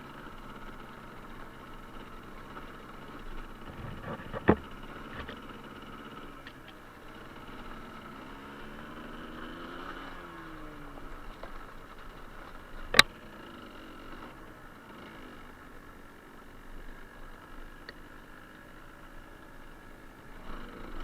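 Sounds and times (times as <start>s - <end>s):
two-stroke engine running: 0.0s - 21.0s
faint ticks: 17.4s - 18.2s.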